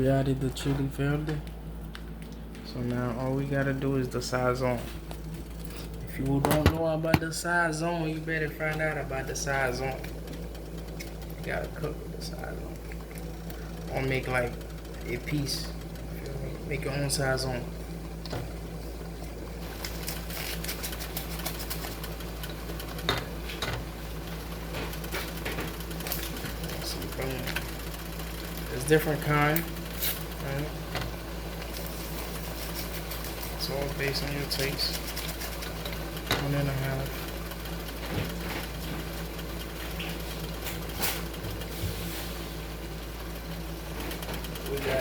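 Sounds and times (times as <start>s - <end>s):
steady low hum: 0.0s - 45.0s
food crackling in a pan: 19.6s - 26.7s, 29.7s - 33.6s, 34.6s - 36.4s.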